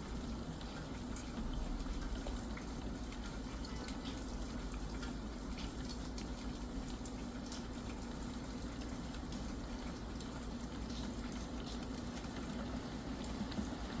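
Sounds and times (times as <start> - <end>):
steady rain: 7.0 - 14.0.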